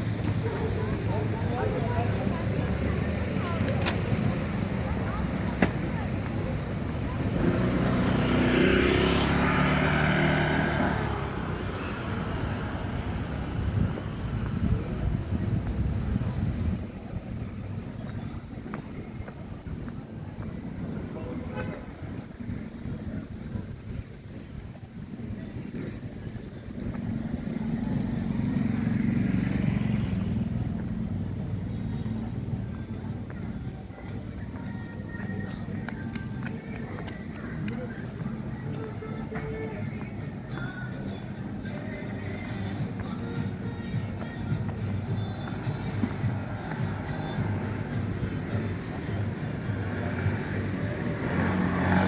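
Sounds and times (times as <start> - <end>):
vehicle engine passing by: 6.7 - 13.8, 26.9 - 32.3, 46.0 - 52.0.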